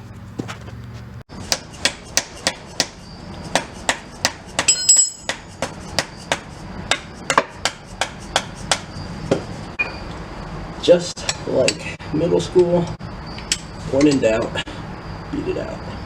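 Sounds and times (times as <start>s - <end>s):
ringing metallic clinks: 4.7s - 5.4s, 13.3s - 14.5s.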